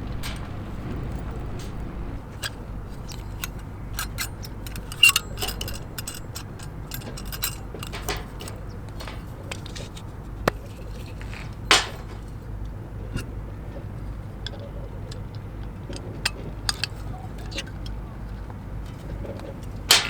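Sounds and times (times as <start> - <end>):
low steady rumble: 0.0 - 20.0
small objects clicking and clattering: 0.1 - 12.3.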